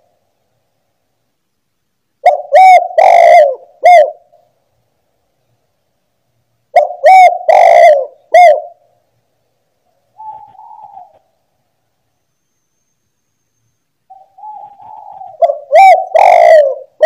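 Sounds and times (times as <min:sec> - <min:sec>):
dove cooing: 0:02.2 - 0:04.4, 0:06.7 - 0:08.9, 0:10.2 - 0:11.3, 0:14.1 - 0:17.0.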